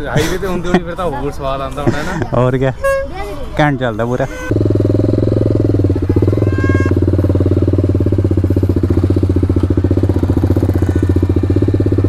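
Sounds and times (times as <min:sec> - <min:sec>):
motorcycle engine running: 0:04.4 - 0:12.0.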